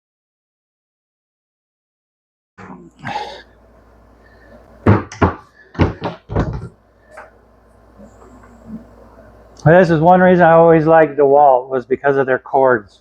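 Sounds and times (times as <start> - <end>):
hard objects knocking and thumping: 4.8 - 7.3.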